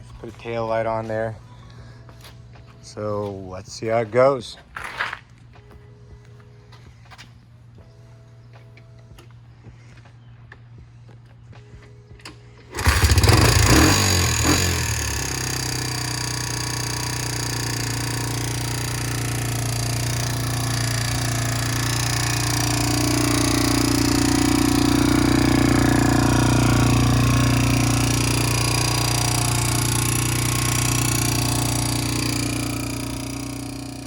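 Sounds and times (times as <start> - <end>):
atv engine running: 9.0 - 34.0.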